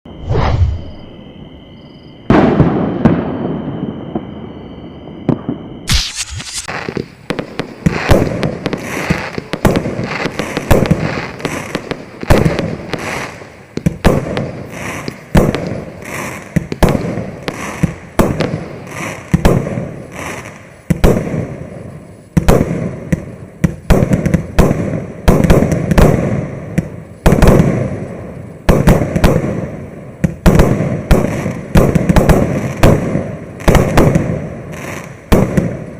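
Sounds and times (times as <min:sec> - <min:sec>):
loud firework bang: 0:02.3 - 0:04.3, 0:05.3 - 0:07.0
firework launches and bursts: 0:05.4 - 0:35.9.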